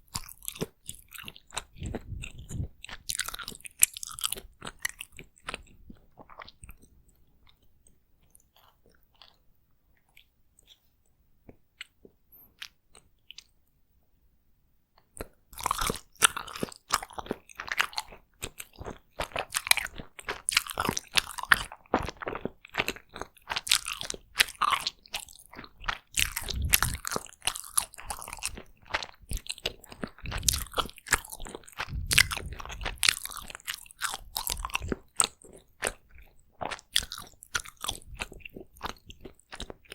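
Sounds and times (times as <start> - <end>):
biting and chewing: 0.0 - 9.4, 15.2 - 39.9
faint mouth clicks: 26.4 - 27.0.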